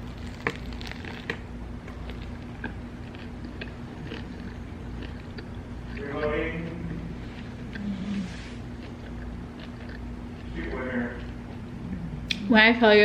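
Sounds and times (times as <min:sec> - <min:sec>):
chewing crusty sandwich: 0:00.0 - 0:12.4.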